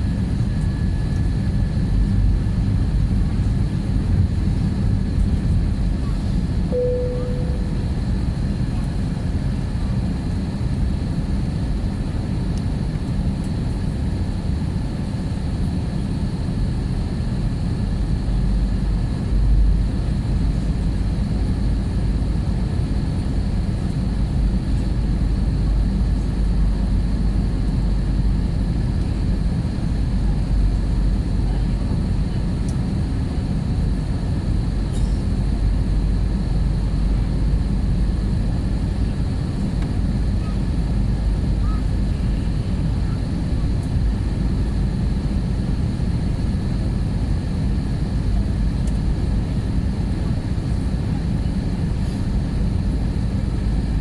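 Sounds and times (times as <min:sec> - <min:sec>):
jet engine and airflow roar: 0:00.0 - 0:54.0
faint steady whine: 0:05.2 - 0:08.9.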